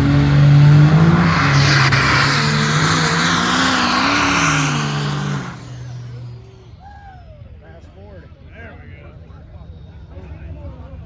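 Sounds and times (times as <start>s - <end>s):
exhaust and turbo rush: 0.0s - 7.0s
diesel truck engines revving: 0.0s - 7.1s.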